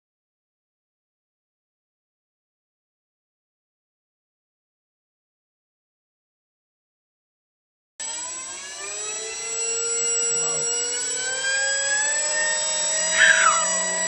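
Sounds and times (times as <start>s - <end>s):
model airplane motor whine: 8.0s - 14.0s.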